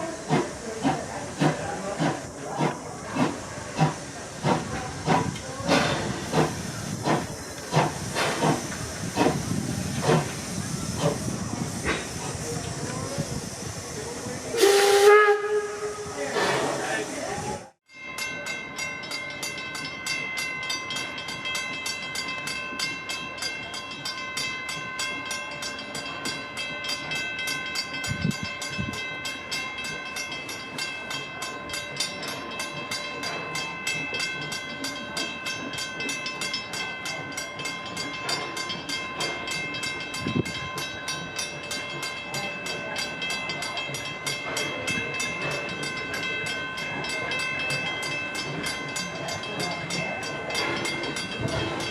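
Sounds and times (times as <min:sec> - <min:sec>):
train wheels clicking on track: 0:00.0 - 0:15.2, 0:27.8 - 0:51.9.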